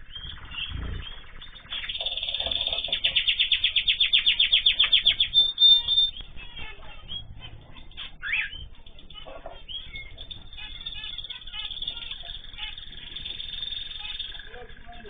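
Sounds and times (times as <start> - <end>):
cage birds chirping: 0.0 - 15.0.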